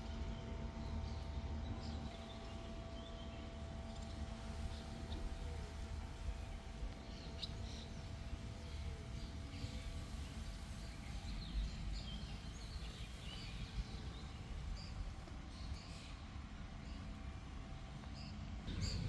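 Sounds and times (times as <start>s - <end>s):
small birds chirping: 6.3s - 16.2s
steady low rumble: 18.5s - 19.0s.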